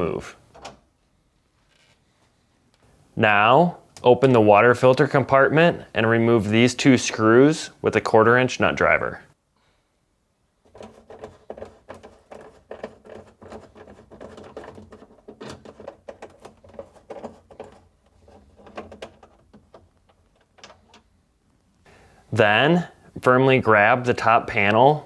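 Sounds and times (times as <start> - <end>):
nut driver clicking and scraping: 10.7 - 21.1.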